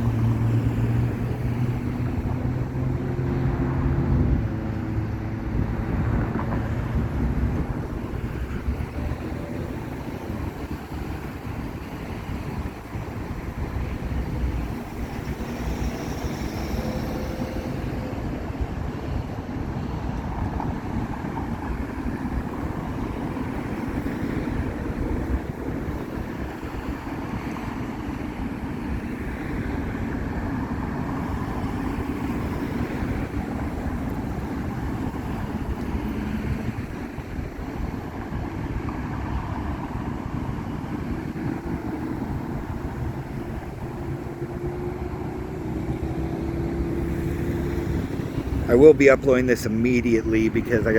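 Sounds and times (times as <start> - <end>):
freeway traffic passing: 0.0 - 50.9.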